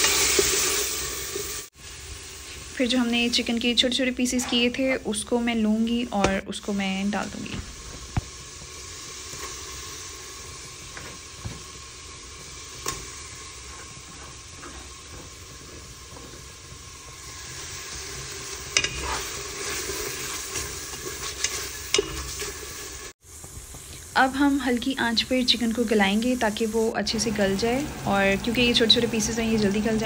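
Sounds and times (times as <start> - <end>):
food sizzling in a metal pot: 0.0 - 30.0
wooden spatula scraping a pot: 13.4 - 16.8, 18.8 - 22.8.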